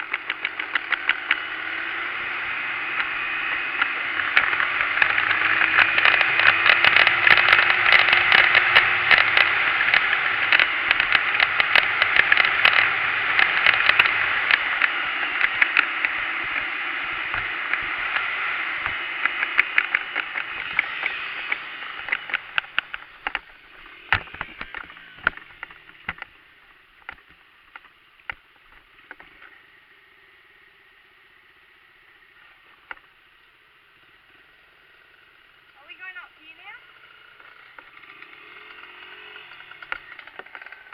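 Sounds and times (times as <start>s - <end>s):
dirt bike engine running: 0.0s - 40.9s
rapid clicks: 4.4s - 26.4s.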